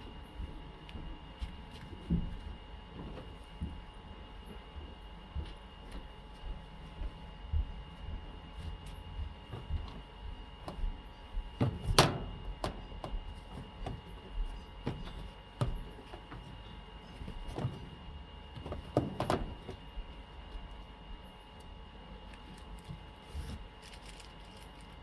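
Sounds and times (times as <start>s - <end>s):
steady low hum: 0.0s - 25.0s
clothes knocking and rustling: 9.4s - 19.9s.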